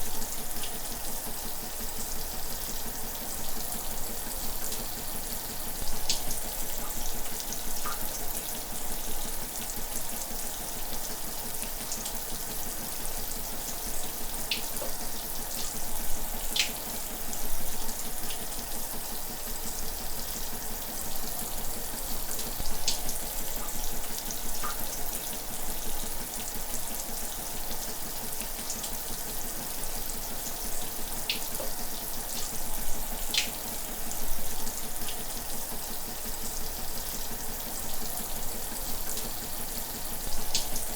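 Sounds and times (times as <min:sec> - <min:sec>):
sharp splash ticks: 0:33.3 - 0:33.6, 0:40.5 - 0:40.8.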